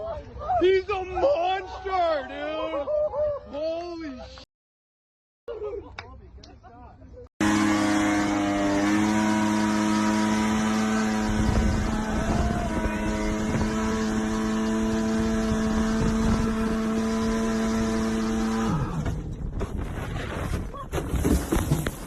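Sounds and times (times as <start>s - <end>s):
motorboat engine droning: 7.4s - 19.0s.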